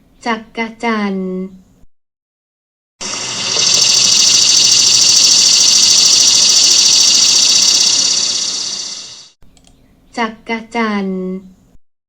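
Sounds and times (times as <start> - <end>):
cicada buzzing: 3.0 - 9.3.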